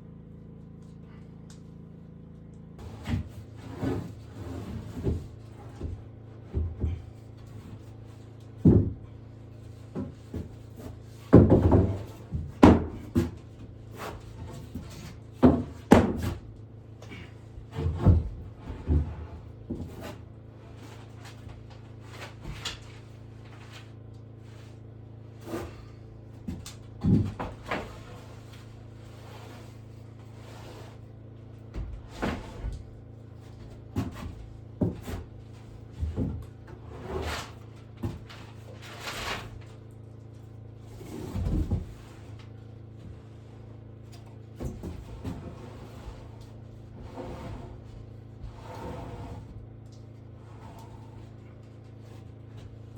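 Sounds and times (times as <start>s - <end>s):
steady low hum: 0.0s - 52.9s
wooden boards knocking: 11.3s - 13.4s.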